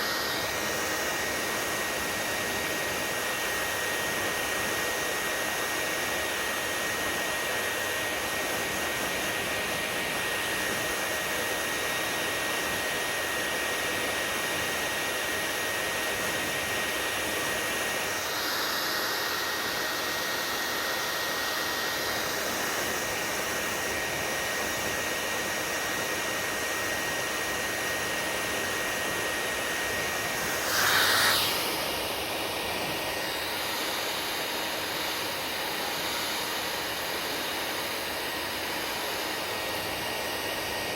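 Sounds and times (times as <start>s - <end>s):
hair dryer blowing: 0.0s - 40.9s
thin high whine: 27.7s - 40.4s.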